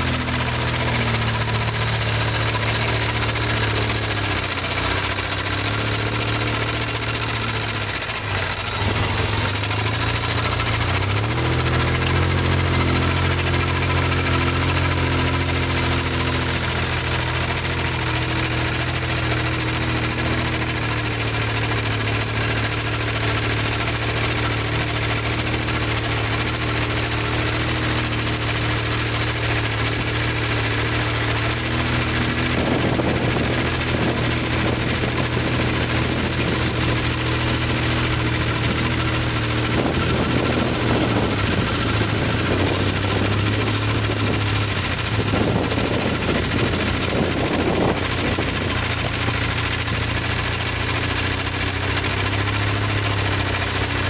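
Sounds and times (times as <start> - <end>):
tractor engines running: 0.0 - 54.0.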